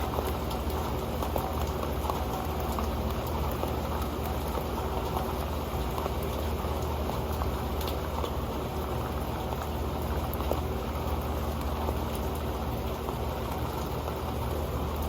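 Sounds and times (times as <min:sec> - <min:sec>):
rain pattering on metal pan: 0:00.0 - 0:15.0.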